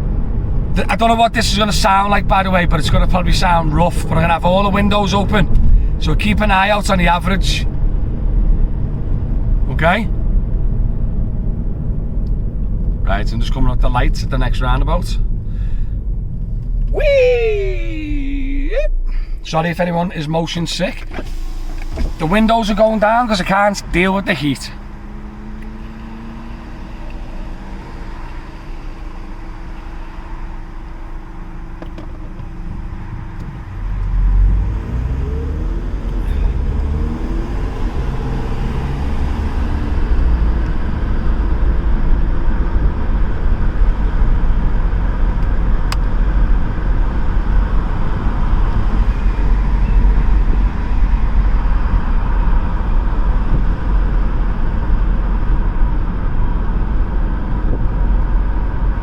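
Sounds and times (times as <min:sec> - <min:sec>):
car engine humming: 0:00.0 - 0:59.0
wind buffeting through windows: 0:32.1 - 0:34.4, 0:35.2 - 0:59.0.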